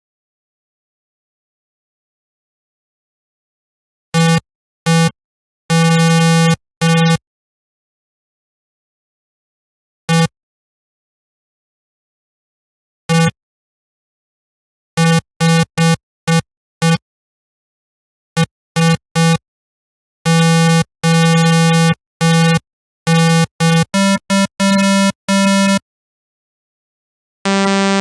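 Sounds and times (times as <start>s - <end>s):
synthesizer notes: 27.5s - 28.0s.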